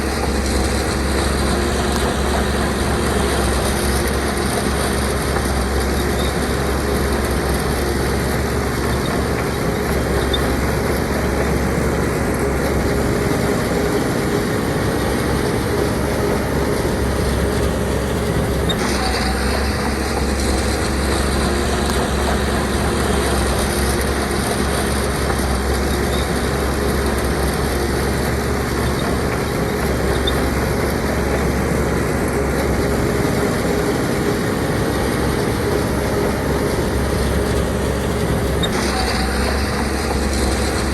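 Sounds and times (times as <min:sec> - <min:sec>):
diesel machinery engine rumble: 0:00.0 - 0:40.9
steady whine: 0:00.0 - 0:40.9.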